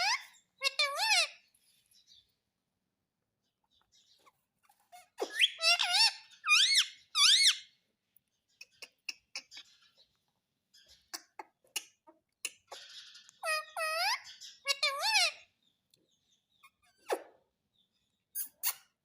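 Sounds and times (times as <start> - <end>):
parakeet squeaky calls: 0.0 - 1.5, 4.0 - 7.8, 12.7 - 15.6.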